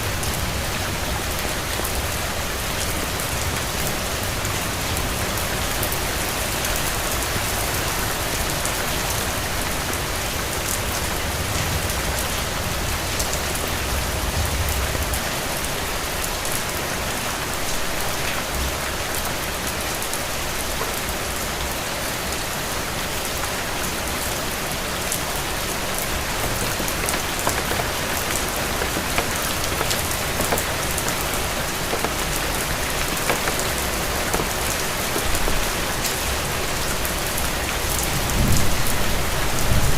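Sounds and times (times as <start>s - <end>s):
steady rain falling: 0.0s - 39.9s
raindrops ticking: 25.0s - 38.2s.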